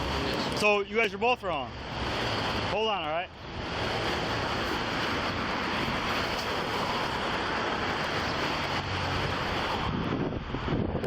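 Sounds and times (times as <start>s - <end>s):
wind buffeting microphone: 3.4s - 11.0s.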